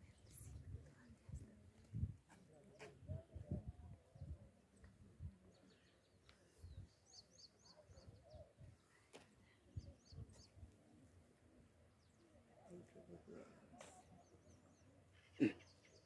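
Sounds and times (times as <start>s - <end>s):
faint bird chirping: 3.8s - 12.9s, 14.0s - 16.0s.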